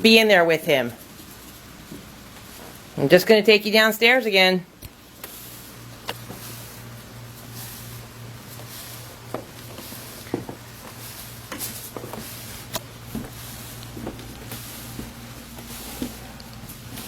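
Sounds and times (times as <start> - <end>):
steady low hum: 0.0 - 17.0
footsteps: 5.1 - 17.0.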